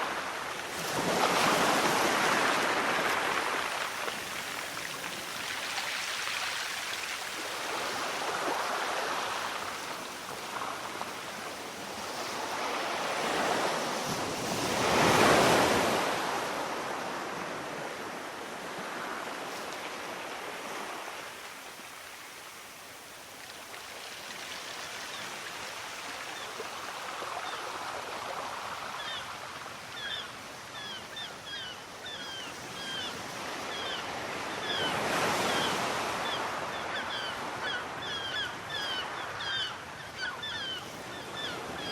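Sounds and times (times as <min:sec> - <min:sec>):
sea waves washing onto shore: 0:00.0 - 0:31.2.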